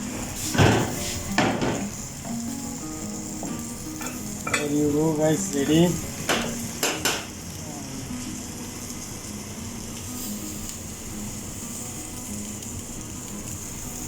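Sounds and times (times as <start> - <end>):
food sizzling on a hot plate: 0.0 - 14.0
knock on a plate: 0.6 - 1.9.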